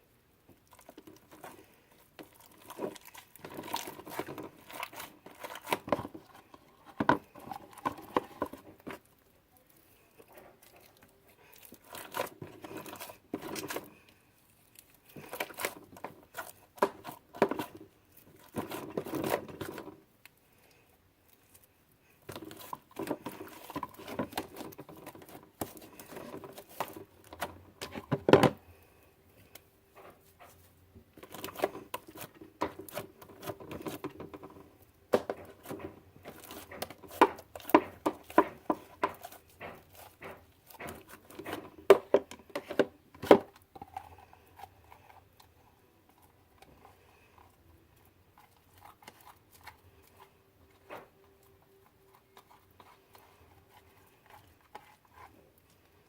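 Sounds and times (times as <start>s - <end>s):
sticky slime crackles: 0.5s - 20.4s, 31.2s - 56.0s.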